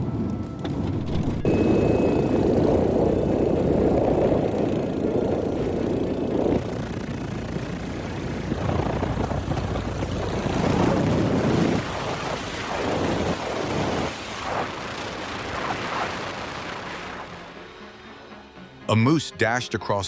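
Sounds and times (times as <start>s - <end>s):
strong wind gusting: 0.0s - 17.2s.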